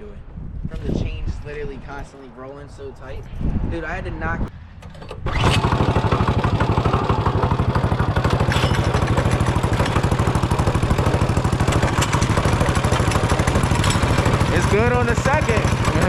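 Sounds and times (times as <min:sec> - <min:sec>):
small engine idling: 0:05.3 - 0:16.0.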